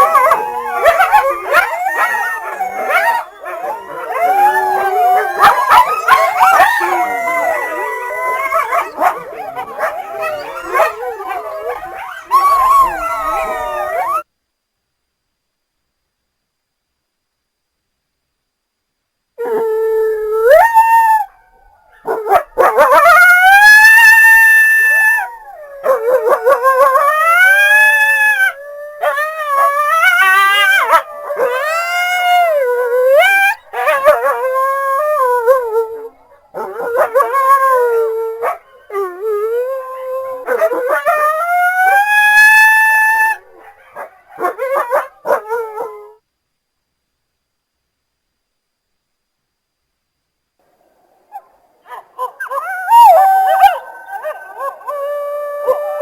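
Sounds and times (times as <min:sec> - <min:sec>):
coyotes yipping: 0:00.0 - 0:14.2
coyotes howling: 0:00.0 - 0:14.3, 0:19.4 - 0:46.2, 0:51.3 - 0:56.0.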